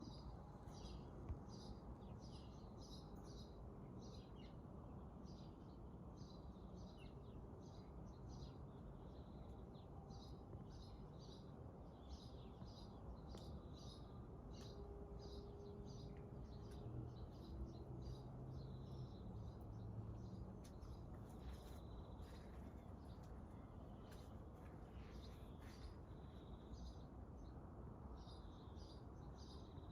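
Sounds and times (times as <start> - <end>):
small birds chirping: 10.2 - 27.5.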